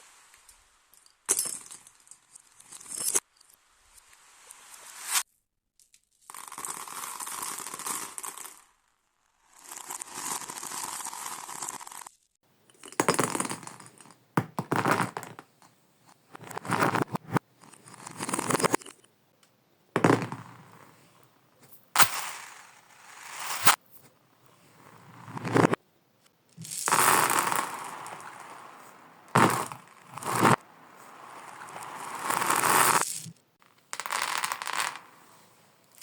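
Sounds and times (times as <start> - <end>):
reversed marbles rattling: 16.3 - 19.0, 20.0 - 21.2, 21.9 - 23.8, 24.6 - 25.8, 26.6 - 36.0.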